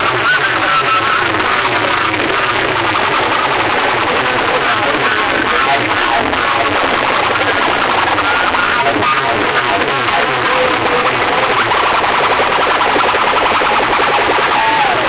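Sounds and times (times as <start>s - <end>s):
loud music from sound systems: 9.9s - 15.0s.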